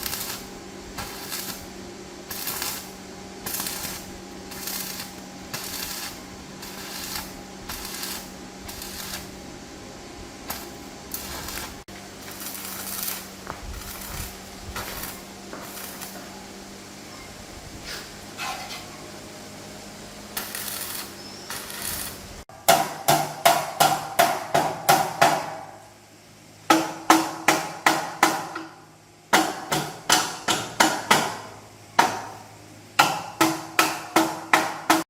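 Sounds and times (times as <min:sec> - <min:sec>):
steady hum: 0:00.0 - 0:34.9
hammer striking steel: 0:22.6 - 0:25.8, 0:26.7 - 0:32.4, 0:33.0 - 0:35.0.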